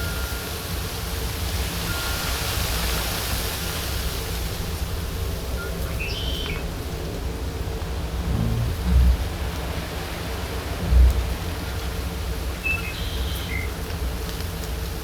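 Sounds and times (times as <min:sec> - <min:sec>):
low rumble: 0:06.6 - 0:10.0
high bird chirp: 0:12.6 - 0:13.8.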